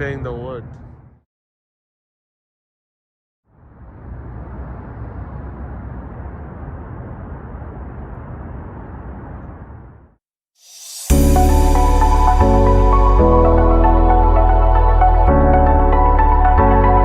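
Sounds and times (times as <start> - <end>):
low outdoor rumbling: 3.5 - 10.2.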